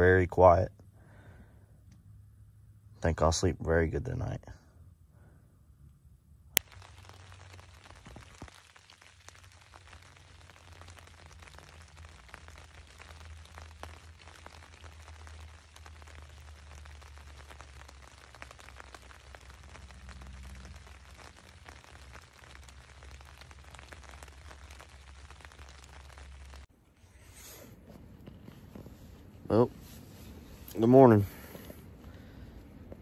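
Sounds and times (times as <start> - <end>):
rain pattering on tent fabric: 6.5 - 26.7, 27.9 - 33.0.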